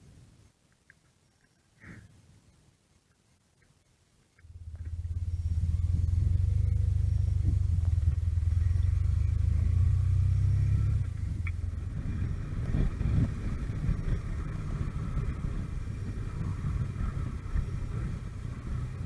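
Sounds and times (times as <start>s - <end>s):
motorcycle engine humming: 4.4s - 19.0s.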